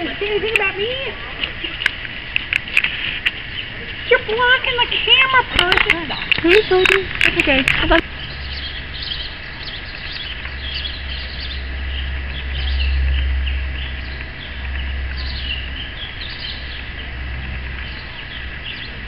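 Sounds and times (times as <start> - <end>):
small birds chirping: 0.0 - 19.0
steady low rumble: 0.0 - 19.0.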